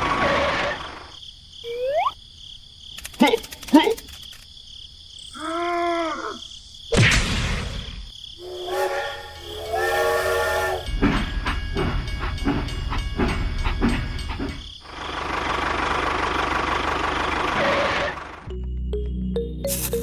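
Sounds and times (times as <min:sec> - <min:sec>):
steam train whistle: 0:08.4 - 0:11.0
engine running with rough knock: 0:11.8 - 0:18.5.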